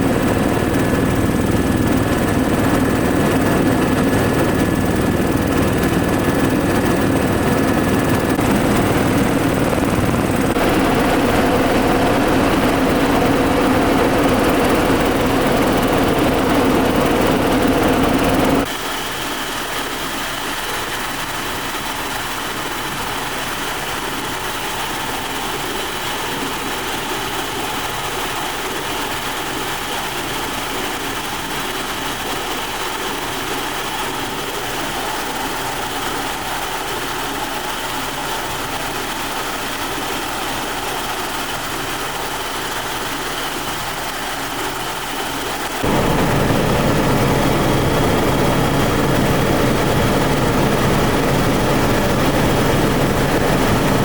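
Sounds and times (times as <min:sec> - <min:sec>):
helicopter engine and rotor: 0:00.0 - 0:54.0
faint steady tones: 0:04.9 - 0:18.6, 0:45.8 - 0:54.0.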